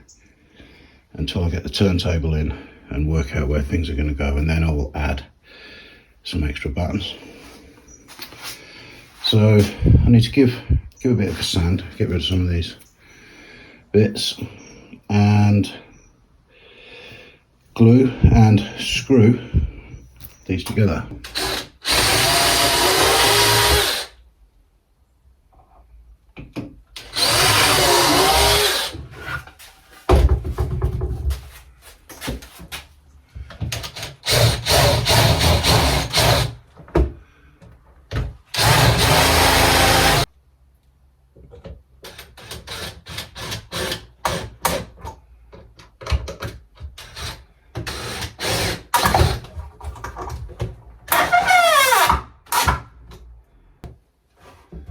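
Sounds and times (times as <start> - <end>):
power drill driving screws: 21.2 - 24.2, 27.0 - 29.0, 33.8 - 36.6, 38.5 - 40.3, 42.1 - 44.9, 47.0 - 49.5, 51.1 - 52.8.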